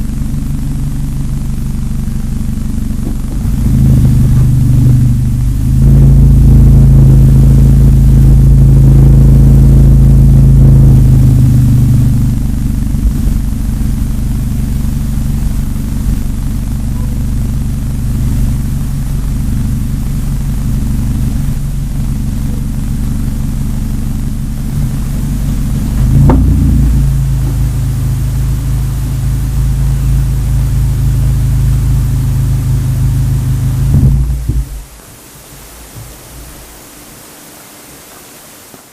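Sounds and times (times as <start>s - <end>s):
car exhaust drone: 0.0s - 37.8s.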